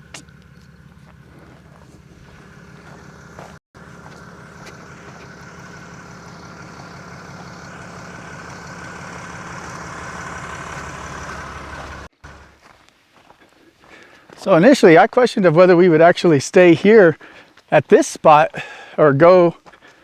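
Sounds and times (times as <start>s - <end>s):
pickup truck engine running: 0.0s - 12.7s.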